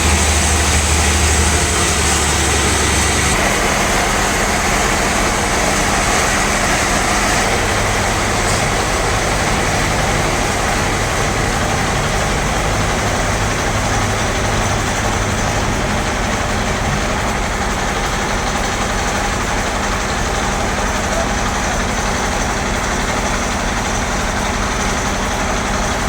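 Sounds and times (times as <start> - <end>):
band saw running: 0.0 - 26.0.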